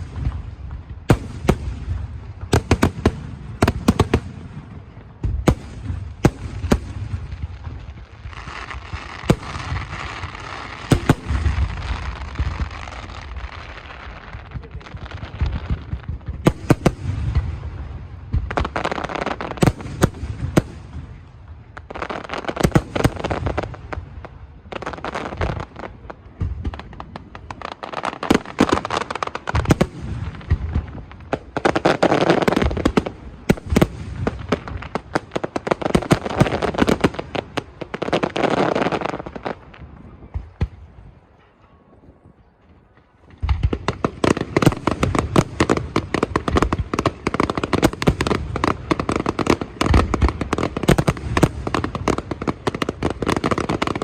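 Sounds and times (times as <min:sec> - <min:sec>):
fireworks crackling: 0:00.0 - 0:41.7, 0:42.6 - 0:54.0
fireworks bangs: 0:00.0 - 0:54.0.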